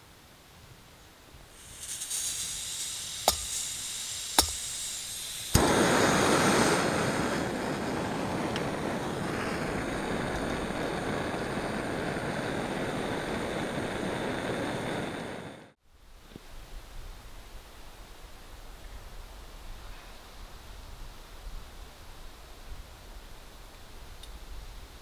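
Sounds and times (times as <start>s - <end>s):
gas burner rushing: 1.5s - 15.8s
gas hissing from valve: 1.5s - 15.8s.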